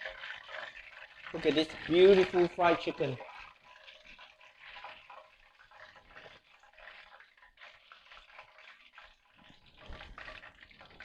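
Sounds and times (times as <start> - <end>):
oil frying chicken sizzling: 1.3 - 3.2.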